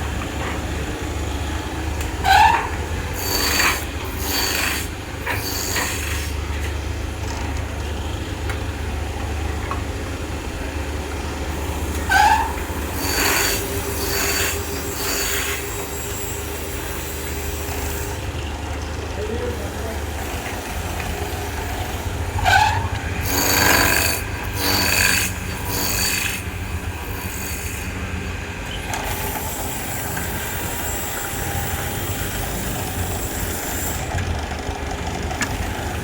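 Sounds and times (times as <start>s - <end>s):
woodworking machine humming: 0.0s - 36.0s
wood rasping strokes: 2.3s - 6.4s, 11.9s - 18.2s, 22.4s - 28.1s
wood squealing: 22.0s - 27.6s.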